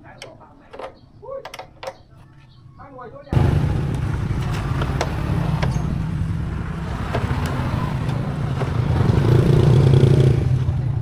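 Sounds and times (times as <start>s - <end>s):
motorcycle engine running: 3.4s - 11.0s.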